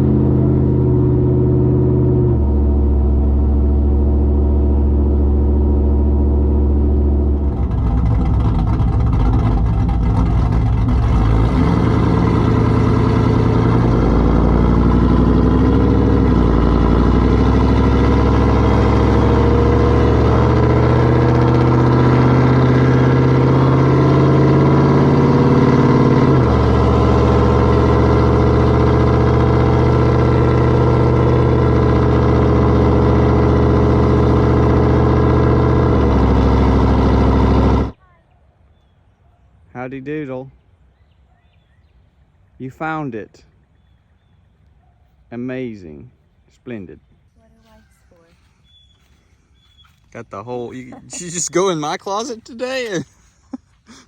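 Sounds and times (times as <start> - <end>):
pickup truck exhaust running: 0.0 - 38.0, 50.7 - 53.8.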